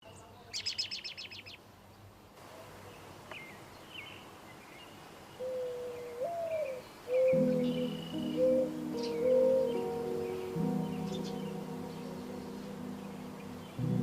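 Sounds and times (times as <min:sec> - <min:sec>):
faint bird chirps: 0:00.0 - 0:02.1, 0:02.8 - 0:13.9
bird trilling: 0:05.4 - 0:13.8.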